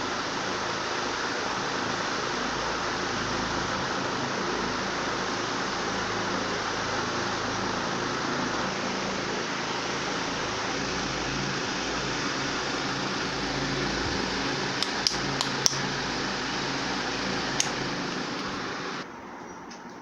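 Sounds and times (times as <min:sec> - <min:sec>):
faint motor hum: 0:00.0 - 0:19.2
ceiling fan air rush: 0:00.0 - 0:19.5
sharp clicks: 0:14.8 - 0:15.9, 0:17.5 - 0:18.6.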